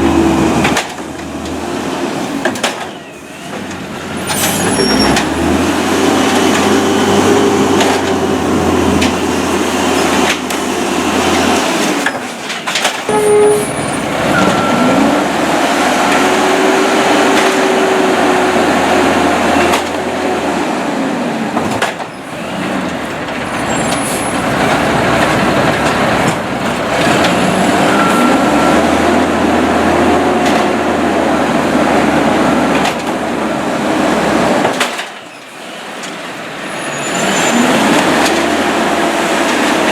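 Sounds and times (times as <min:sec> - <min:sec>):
garbage truck engine revving: 0:00.0 - 0:39.9.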